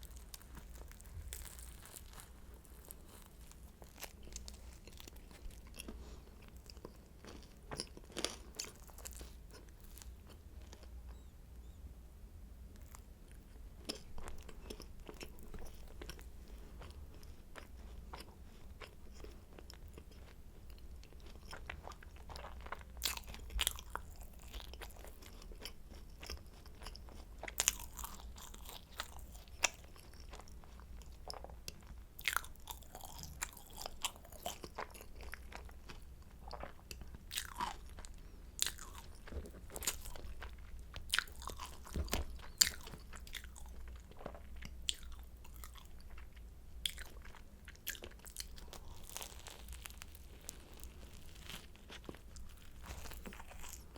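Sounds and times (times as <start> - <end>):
person chewing crunchy pastry: 0.0 - 11.3, 12.7 - 53.9.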